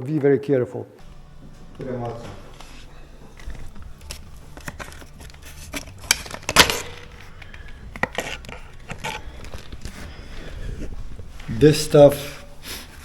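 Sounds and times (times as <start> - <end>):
small parts and tools clattering: 5.7 - 10.1.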